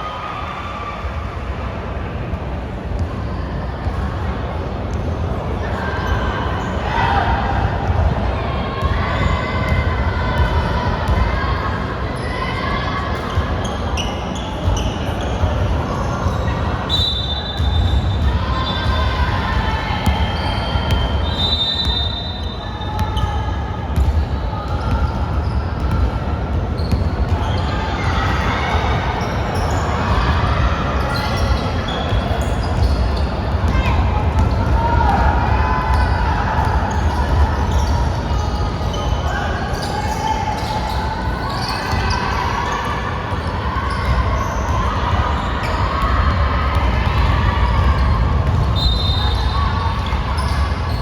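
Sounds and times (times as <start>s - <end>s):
echoing hall ambience: 0.0s - 51.0s
basketball bouncing on court: 9.6s - 11.3s, 17.6s - 21.2s, 22.9s - 27.6s, 32.0s - 38.0s, 45.6s - 49.4s.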